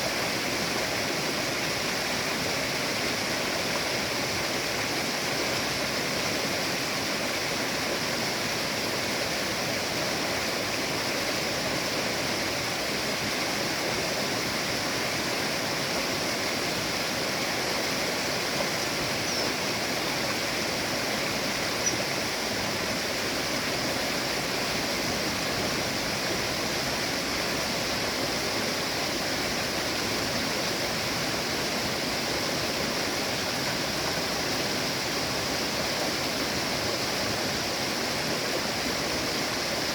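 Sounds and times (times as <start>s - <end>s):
river water rushing: 0.0s - 39.9s
faint high chirps: 18.6s - 19.8s, 21.7s - 22.2s.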